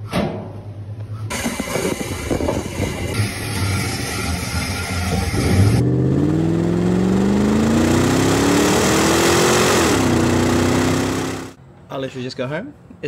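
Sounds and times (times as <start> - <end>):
car engine accelerating: 1.3 - 11.6.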